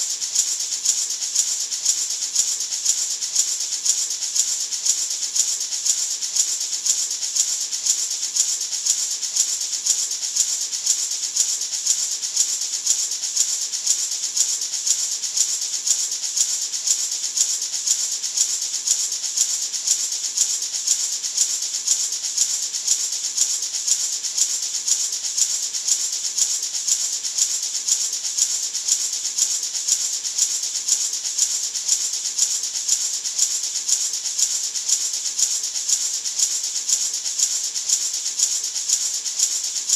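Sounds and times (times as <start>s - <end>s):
maraca rattling: 0.0s - 39.9s.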